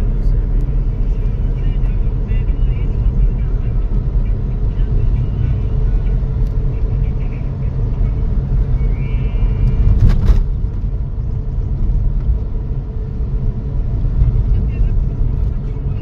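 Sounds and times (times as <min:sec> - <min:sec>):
road vehicle rumble: 0:00.0 - 0:16.0.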